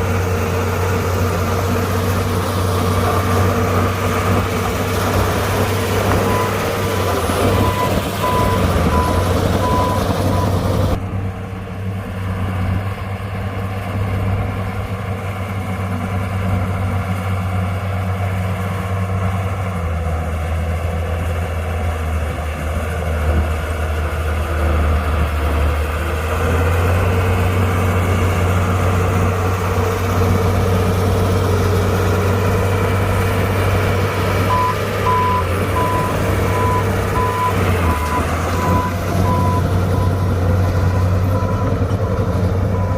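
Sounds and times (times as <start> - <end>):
heavy diesel engines running: 0.0 - 42.9.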